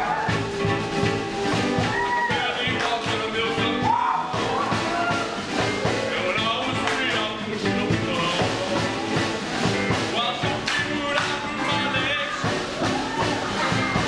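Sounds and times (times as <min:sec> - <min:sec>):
live rock band playing: 0:00.0 - 0:14.0
person singing: 0:00.0 - 0:14.0.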